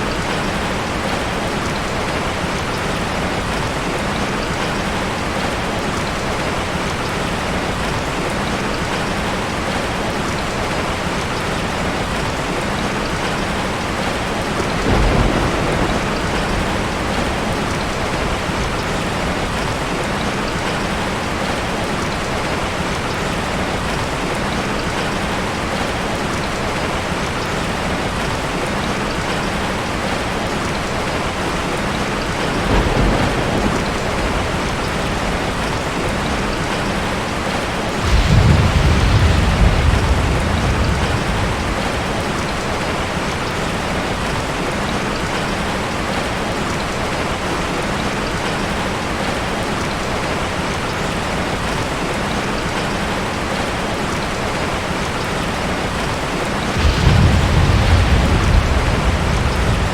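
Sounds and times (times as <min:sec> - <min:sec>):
heavy rain: 0:00.0 - 0:59.9
thunder rolling: 0:14.6 - 0:20.0, 0:32.4 - 0:43.1, 0:56.7 - 0:59.9.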